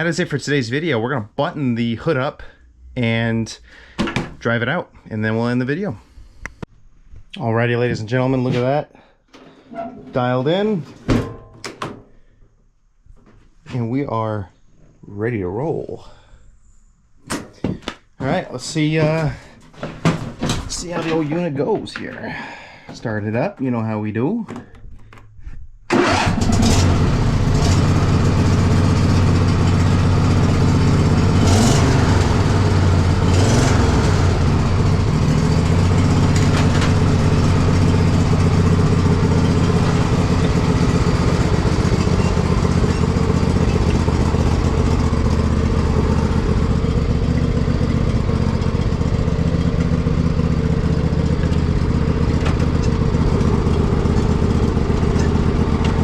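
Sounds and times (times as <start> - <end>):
riding mower engine running: 25.9 - 56.0.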